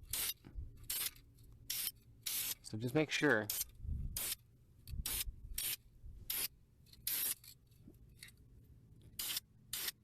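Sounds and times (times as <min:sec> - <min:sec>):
spray paint can hissing: 0:00.0 - 0:01.1, 0:01.7 - 0:02.6, 0:03.5 - 0:04.4, 0:05.0 - 0:07.4, 0:09.2 - 0:10.0.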